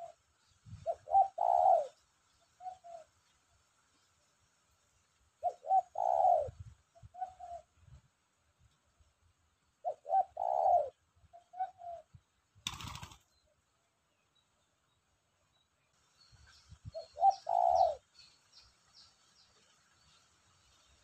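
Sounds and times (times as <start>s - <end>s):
dove cooing: 0.0s - 2.0s, 2.6s - 3.1s, 5.4s - 7.8s, 9.8s - 13.2s, 16.9s - 18.1s.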